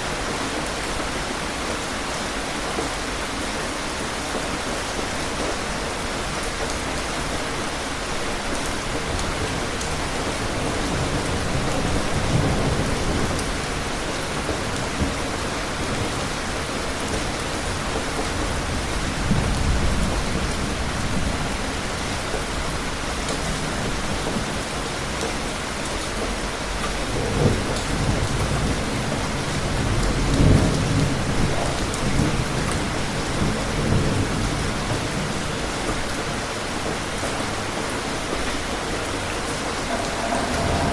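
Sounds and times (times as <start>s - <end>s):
steady rain hissing: 0.0s - 40.9s
thunder rumbling: 38.4s - 40.9s.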